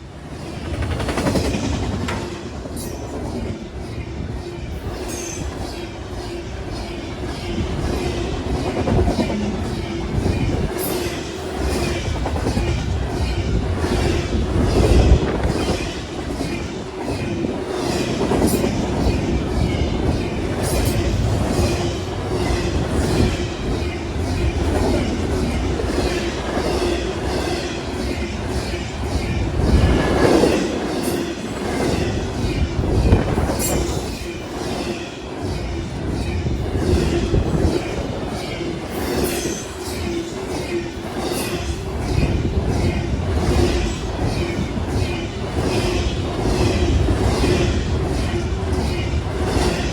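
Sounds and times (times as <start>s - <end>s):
train rumble: 0.0s - 49.9s
train wheels clicking on rail joints: 0.0s - 49.9s.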